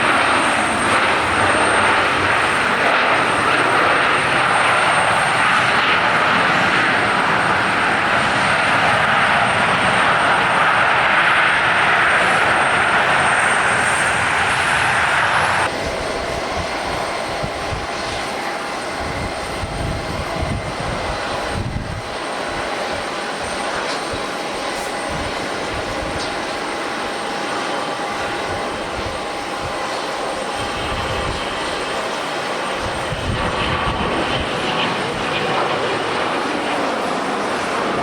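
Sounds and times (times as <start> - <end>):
gusty wind on microphone: 0.0 - 27.2, 27.8 - 38.0
aircraft turbine engines whining: 0.0 - 38.0.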